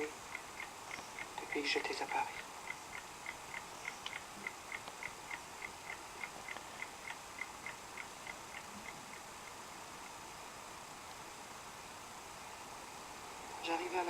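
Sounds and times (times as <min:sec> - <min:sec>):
clock ticking faintly: 0:00.0 - 0:10.4
light hiss: 0:00.0 - 0:14.0.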